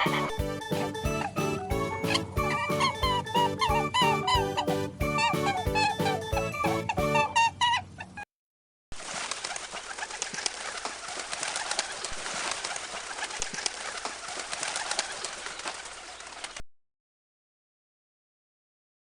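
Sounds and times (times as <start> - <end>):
pigeons cooing: 0.0 - 7.5.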